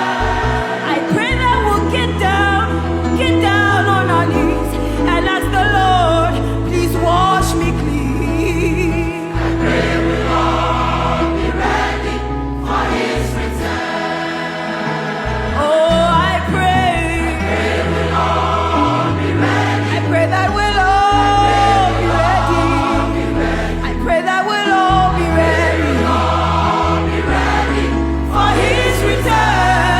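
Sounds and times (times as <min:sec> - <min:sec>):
gospel choir singing: 0:00.0 - 0:29.9
deep bass notes: 0:15.3 - 0:24.2.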